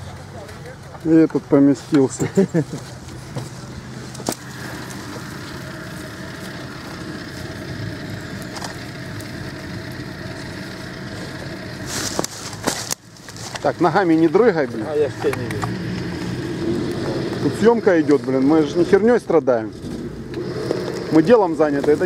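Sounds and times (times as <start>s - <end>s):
car engine running: 0.0s - 22.0s
rustling: 10.3s - 16.4s.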